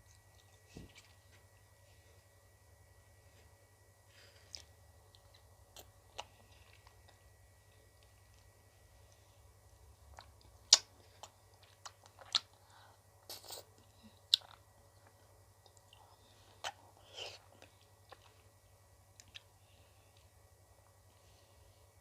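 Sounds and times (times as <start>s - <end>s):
soft chewing noises: 0.0s - 22.0s.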